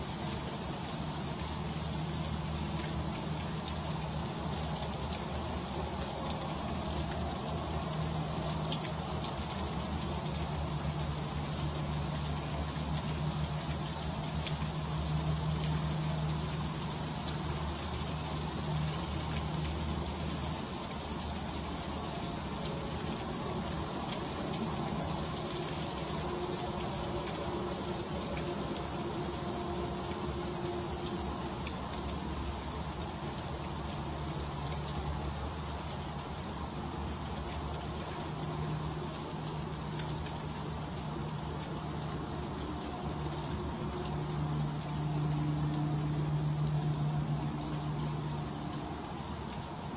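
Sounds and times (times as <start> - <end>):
freezing rain pattering on ice: 0.0 - 49.9.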